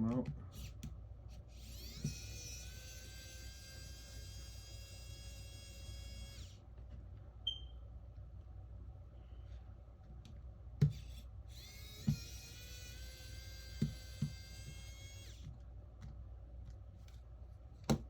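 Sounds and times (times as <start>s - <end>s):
electric screwdriver motor whining: 1.5s - 6.6s, 10.9s - 15.5s.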